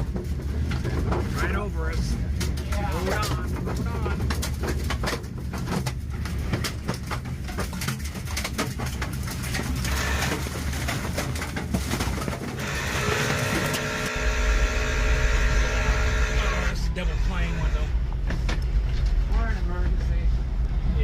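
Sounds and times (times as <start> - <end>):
debris knocking and rattling: 0.0 - 1.7, 2.3 - 14.1
violent storm wind: 14.1 - 21.0.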